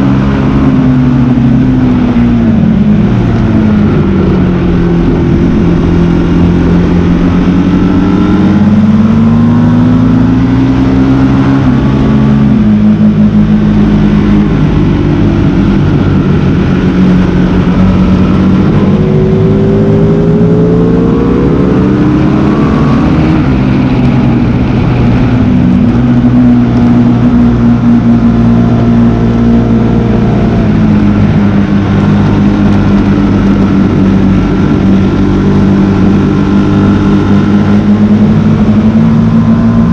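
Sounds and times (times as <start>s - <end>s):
motorcycle engine revving: 0.0s - 39.9s
steady rush of noise: 0.0s - 39.9s.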